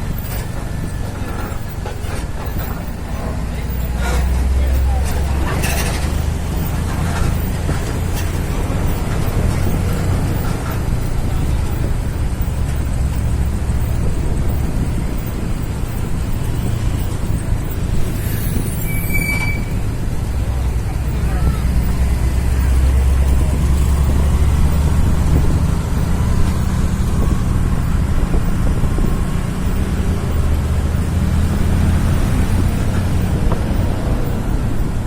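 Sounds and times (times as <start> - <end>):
truck diesel engine running: 0.0 - 35.0
brake squeal with hiss: 13.2 - 20.0.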